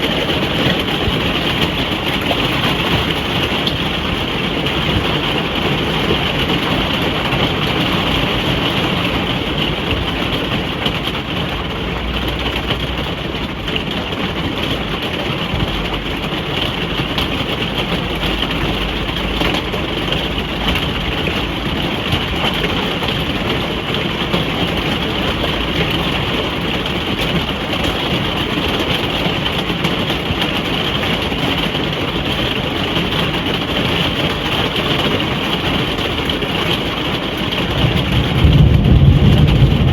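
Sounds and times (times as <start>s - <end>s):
rain on a caravan roof: 0.0s - 39.9s
low rumble: 37.9s - 39.9s.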